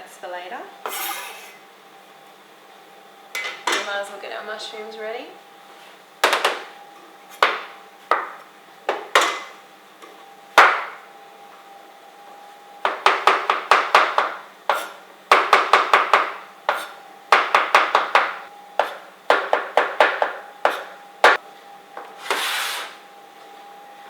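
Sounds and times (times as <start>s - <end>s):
knife chopping mushrooms on board: 7.3s - 9.5s, 10.6s - 11.0s, 12.8s - 21.4s.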